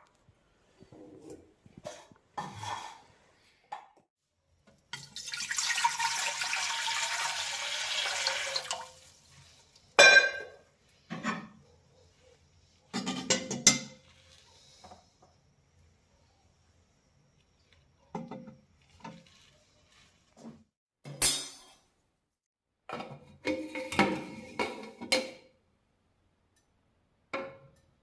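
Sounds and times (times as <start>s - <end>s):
liquid running: 5.0s - 9.8s
dishes clinking: 10.0s - 11.6s.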